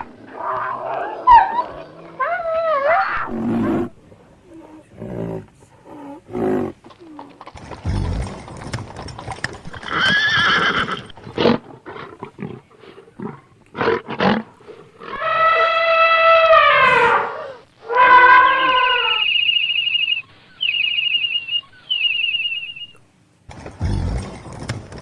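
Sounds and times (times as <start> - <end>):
horse whinnying: 9.6 - 11.2, 15.0 - 19.4.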